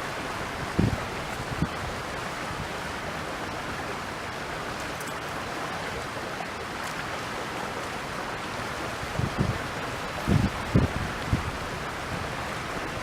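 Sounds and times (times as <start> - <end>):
stream water rushing: 0.0 - 13.0
wind: 0.0 - 13.0
wind buffeting microphone: 0.5 - 2.1, 9.1 - 13.0.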